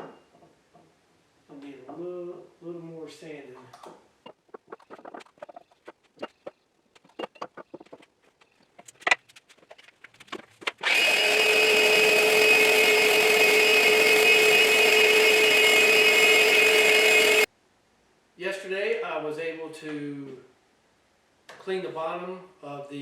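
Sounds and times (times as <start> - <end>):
electric sander whining: 10.8 - 17.5.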